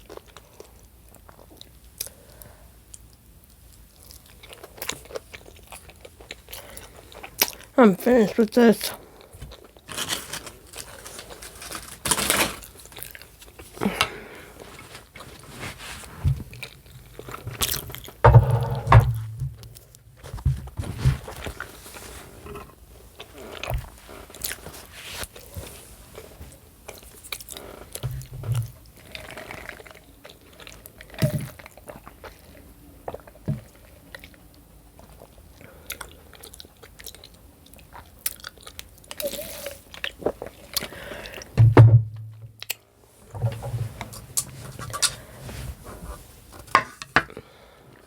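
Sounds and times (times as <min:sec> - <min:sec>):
chewing and biting: 0:02.9 - 0:07.7, 0:23.1 - 0:24.7, 0:35.0 - 0:41.0
low thud: 0:18.2 - 0:19.7, 0:41.6 - 0:42.4.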